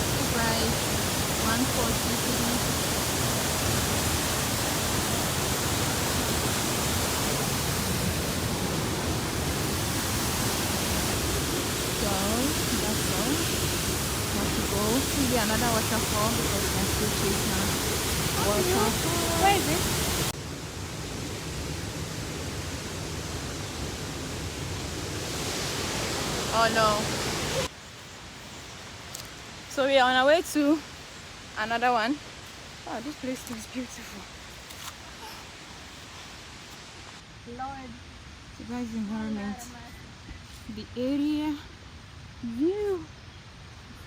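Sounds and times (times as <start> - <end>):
waterfall roaring: 0.0 - 27.7.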